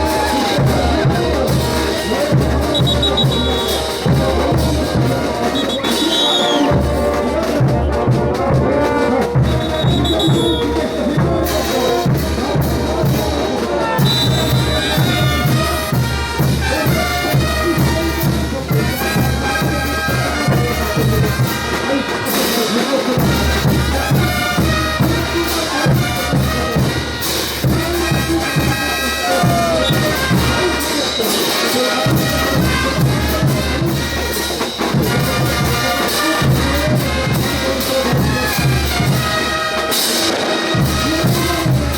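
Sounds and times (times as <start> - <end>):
low drum beat: 0.0 - 21.8, 23.1 - 31.1
trumpets and trombones playing: 0.0 - 41.9.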